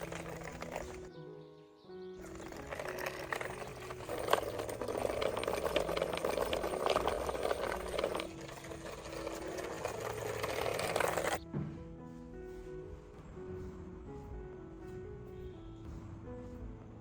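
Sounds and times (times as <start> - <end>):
cart wheels rattling over rough path: 0.0 - 1.1, 2.2 - 11.4
soft background music: 0.0 - 17.0.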